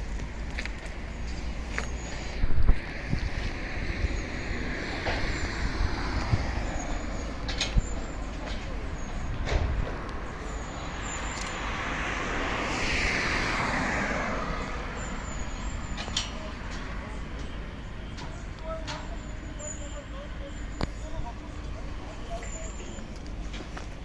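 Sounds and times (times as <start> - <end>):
truck engine rumble: 0.0 - 24.0
rushing noise: 1.5 - 18.1.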